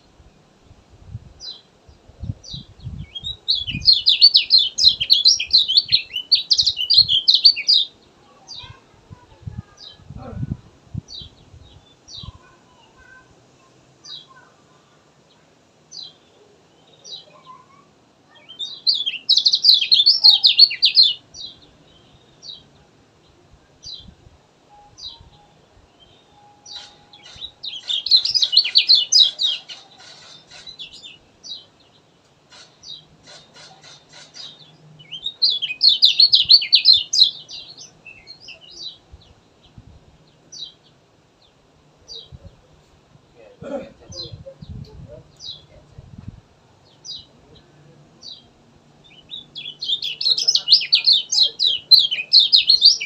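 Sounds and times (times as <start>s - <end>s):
bird warbling song: 1.4s - 8.8s, 15.9s - 22.8s, 24.8s - 42.8s, 46.8s - 53.0s
bird chirps: 2.5s - 8.8s, 16.0s - 22.8s, 24.7s - 40.9s, 48.2s - 53.0s.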